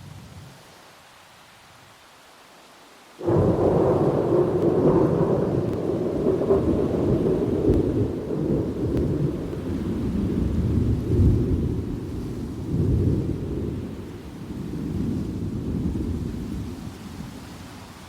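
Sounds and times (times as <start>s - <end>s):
soft rain hiss: 0.0s - 18.0s
loud thunderclap rumbling: 3.2s - 16.9s.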